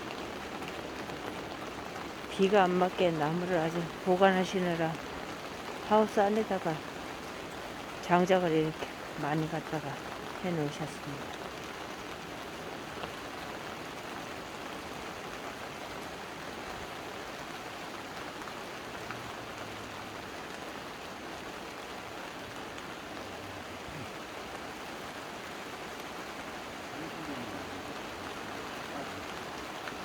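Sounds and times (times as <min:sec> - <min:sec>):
steady hiss: 0:26.9 - 0:29.4.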